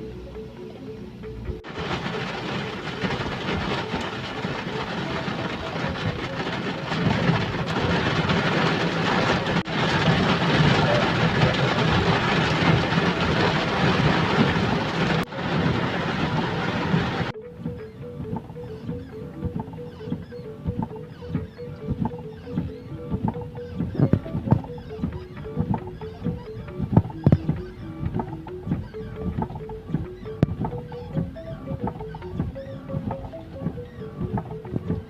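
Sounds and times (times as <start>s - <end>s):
heavy rain downpour: 1.6s - 17.3s.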